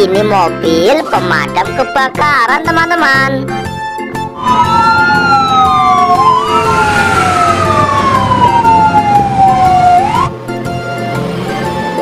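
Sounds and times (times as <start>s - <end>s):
road noise: 4.2s - 12.0s
truck engine: 4.2s - 12.0s
fire engine siren wailing: 4.3s - 10.9s.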